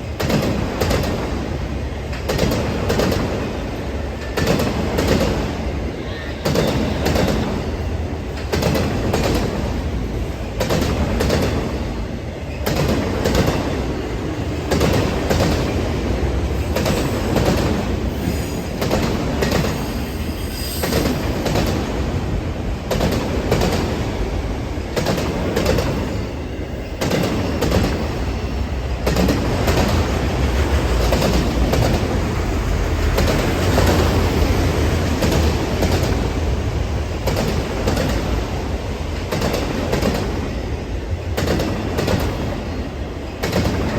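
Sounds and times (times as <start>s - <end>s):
freight train rumbling past: 0.0s - 43.9s
wheels clunking over rail joints: 28.9s - 40.4s.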